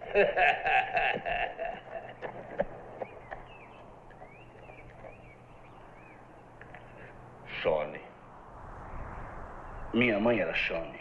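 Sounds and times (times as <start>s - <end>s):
low steady hum: 0.0s - 11.0s
bird chirping: 1.8s - 10.3s.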